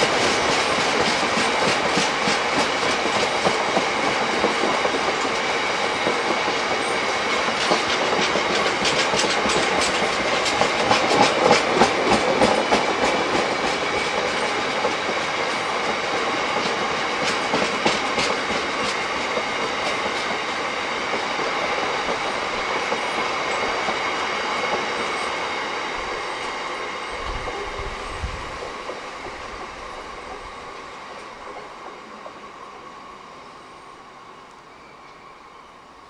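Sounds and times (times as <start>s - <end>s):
train wheels clattering over rail joints: 0.0s - 27.7s.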